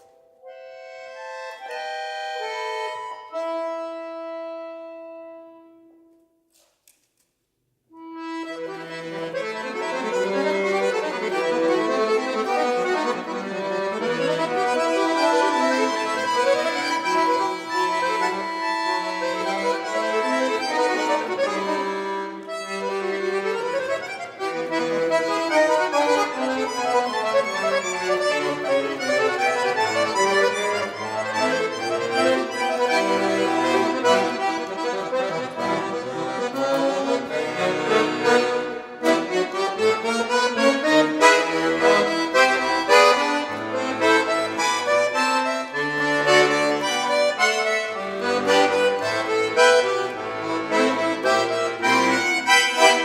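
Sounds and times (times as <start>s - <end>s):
button accordion playing: 0.0s - 6.2s, 7.9s - 53.0s.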